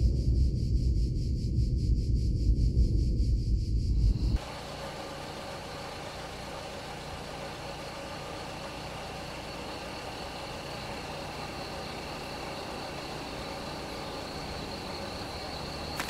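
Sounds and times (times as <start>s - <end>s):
car engine and road drone: 3.7s - 16.0s.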